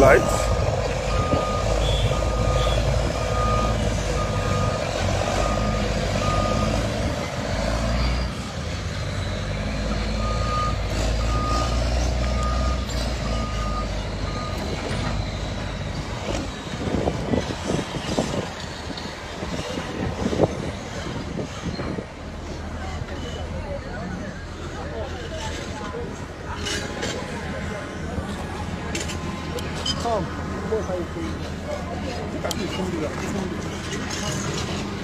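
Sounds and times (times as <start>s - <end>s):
reversing alarm beeping: 0.0s - 6.8s, 10.1s - 15.6s
heavy machinery engine running: 0.0s - 23.5s.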